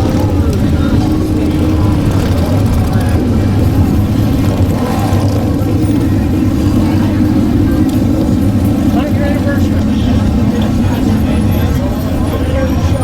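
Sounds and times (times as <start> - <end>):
faint crowd voices: 0.0 - 13.0
motorcycle engine running: 0.0 - 13.0.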